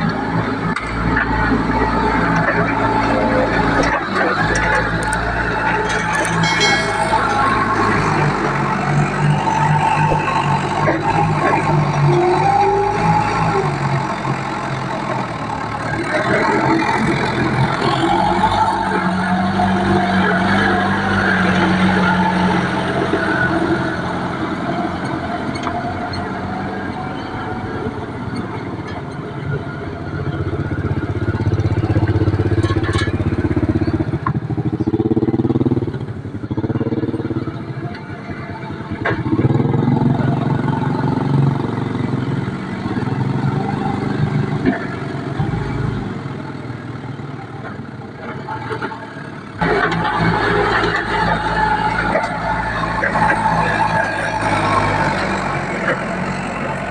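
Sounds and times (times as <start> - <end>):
machine engine revving: 49.6 - 56.9.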